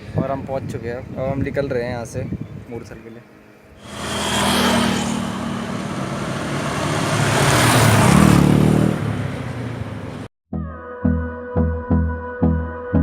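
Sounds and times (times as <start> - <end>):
wind rush on microphone: 0.0 - 3.0
motorcycle engine: 3.8 - 10.3.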